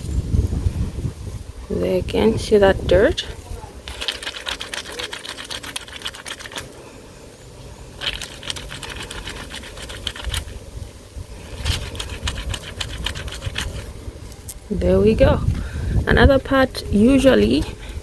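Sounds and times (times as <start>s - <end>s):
soapy fabric scrubbed by hand: 3.8s - 6.8s, 8.0s - 10.6s, 11.4s - 13.9s.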